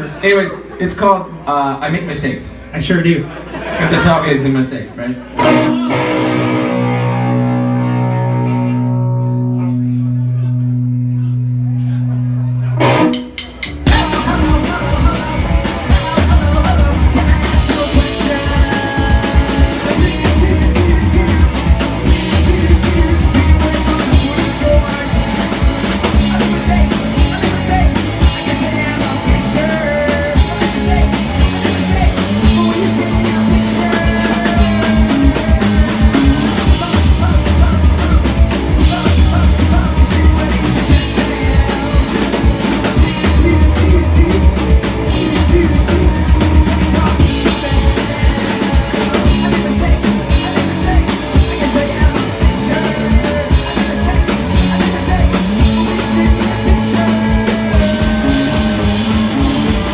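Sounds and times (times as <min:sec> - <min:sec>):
live rock band playing: 0:05.2 - 0:59.9
steady bass drum beat: 0:12.8 - 0:59.9.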